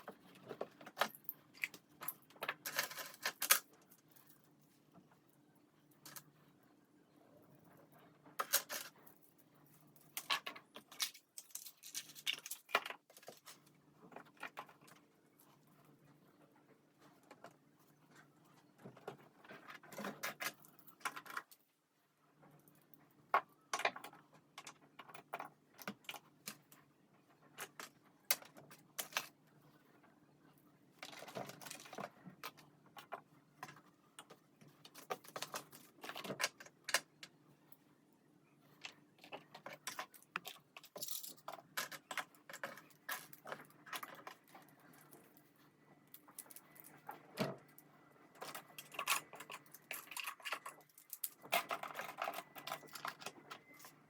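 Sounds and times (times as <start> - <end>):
small objects clicking and tapping: 0.0 - 4.4, 9.9 - 15.0, 31.0 - 37.4, 38.8 - 45.4, 46.1 - 54.0.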